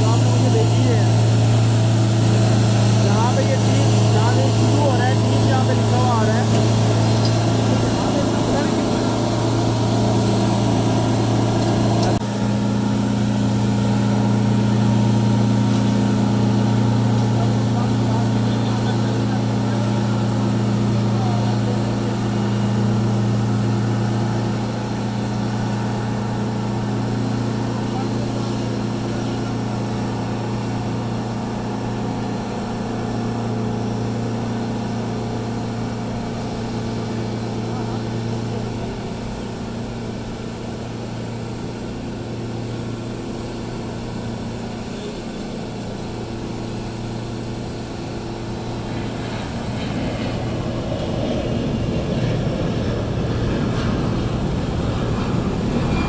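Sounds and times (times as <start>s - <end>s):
aircraft and tug engine drone: 0.0s - 56.0s
steady machine tones: 0.0s - 56.0s.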